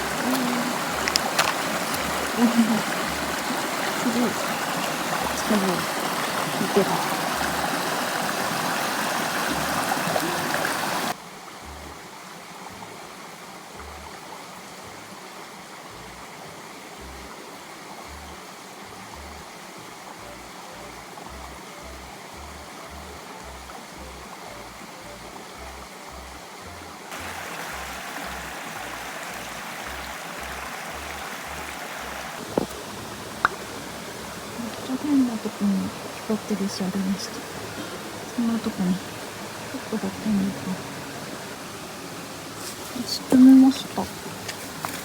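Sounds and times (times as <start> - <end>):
river water flowing: 0.0 - 45.0
soft background music with bass: 1.9 - 2.3, 11.5 - 35.2.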